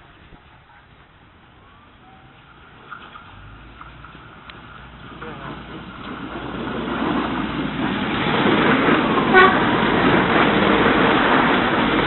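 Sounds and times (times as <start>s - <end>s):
train passing on rails: 0.0s - 12.0s
train horn toot: 9.3s - 9.8s.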